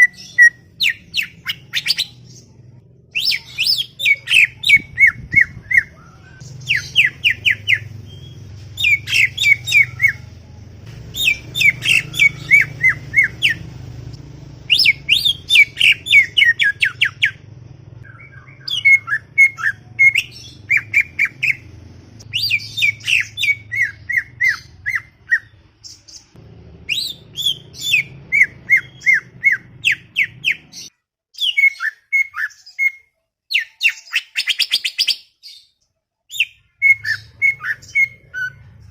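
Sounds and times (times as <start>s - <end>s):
bird singing rapid chirps: 0.0s - 10.3s, 11.0s - 38.9s
low steady hum: 2.0s - 24.8s.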